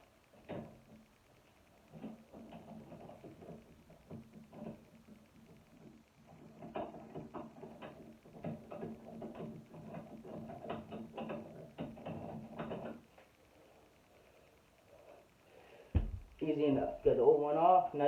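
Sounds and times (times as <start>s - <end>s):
low steady hum: 8.0s - 18.0s.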